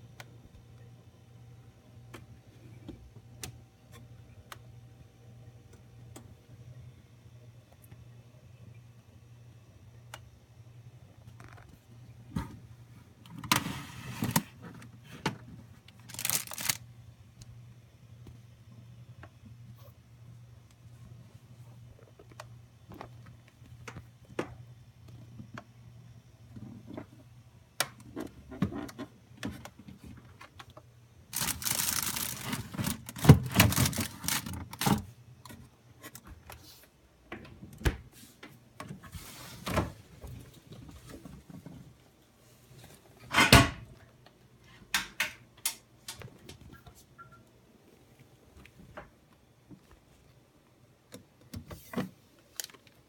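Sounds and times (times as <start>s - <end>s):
rustling and scraping: 16.0s - 16.8s, 31.3s - 35.1s
household items clicking and knocking: 31.3s - 35.0s.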